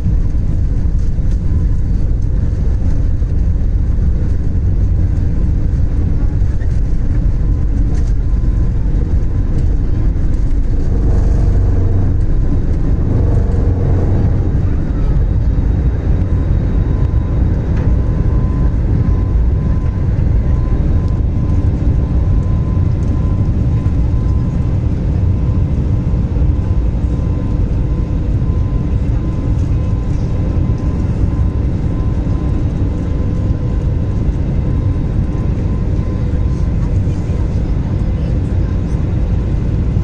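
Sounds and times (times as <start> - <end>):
jet engines deep rumble: 0.0 - 40.0
thin steady whine: 4.8 - 40.0.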